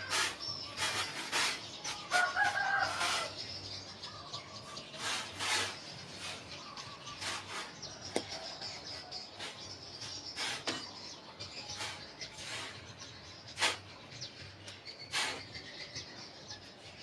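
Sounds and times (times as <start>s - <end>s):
short scraping strokes: 0.0s - 3.4s, 4.9s - 8.3s, 9.4s - 11.1s, 11.7s - 14.0s, 15.0s - 15.7s
birds chirping: 0.0s - 17.0s.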